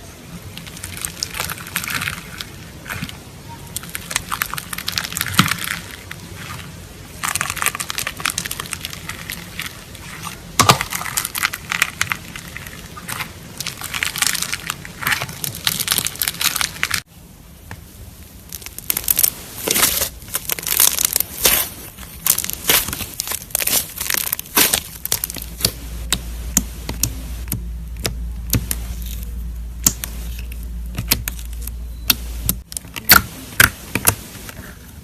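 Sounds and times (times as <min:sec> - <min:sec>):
slime squished by hand crackling: 0:18.5 - 0:34.2.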